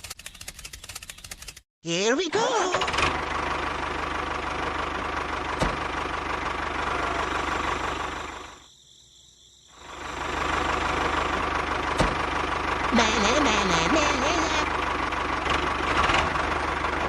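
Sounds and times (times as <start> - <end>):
mini tractor motor running: 10.0 - 17.0.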